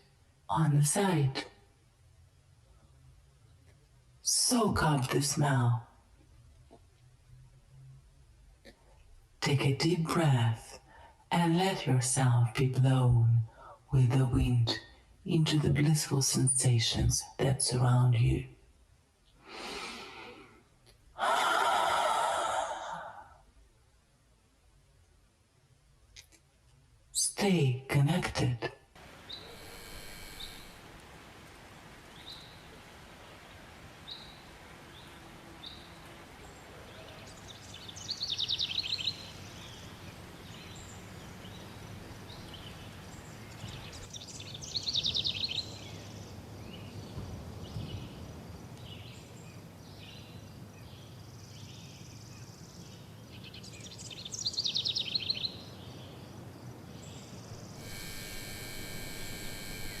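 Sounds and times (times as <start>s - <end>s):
bird trilling: 29.3s - 30.8s, 57.8s - 60.0s
bird chirps: 36.5s - 48.2s.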